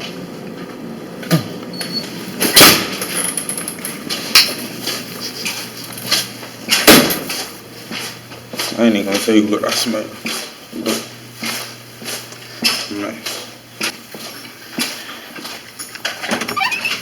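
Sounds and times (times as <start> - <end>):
door opening and shutting: 16.0 - 17.0.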